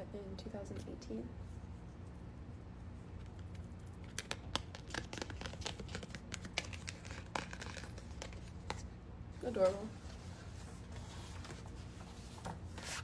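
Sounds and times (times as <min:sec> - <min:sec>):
bookmark crinkling and tapping: 0:03.2 - 0:08.8.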